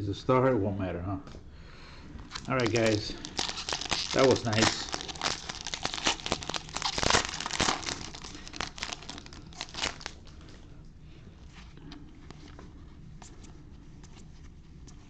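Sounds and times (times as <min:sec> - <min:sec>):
plastic wrapper crinkling and tearing: 0:02.3 - 0:10.6.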